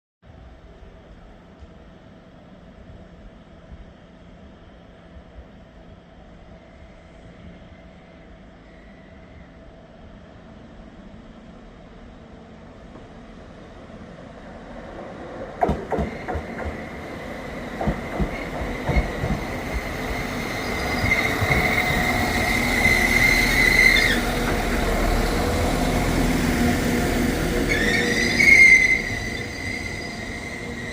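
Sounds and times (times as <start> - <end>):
train pulling into station: 0.3 - 30.9
high brake squeal: 20.1 - 24.4, 27.6 - 30.9.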